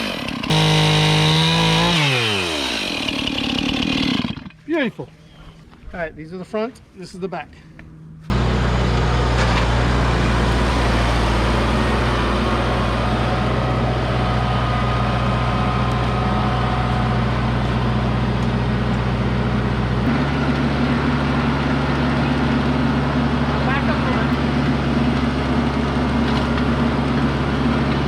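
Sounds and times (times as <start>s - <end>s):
engine running steadily: 7.7s - 28.0s.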